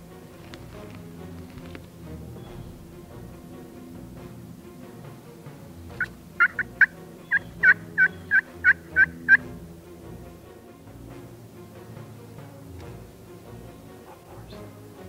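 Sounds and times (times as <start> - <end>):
background music: 0.0 - 15.0
turkey yelps: 6.0 - 9.5.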